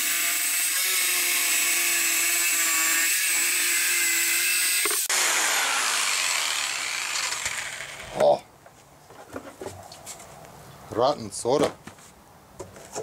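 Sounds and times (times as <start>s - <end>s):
power tool cutting plastic: 0.0s - 8.3s
motor winding down: 0.6s - 8.2s.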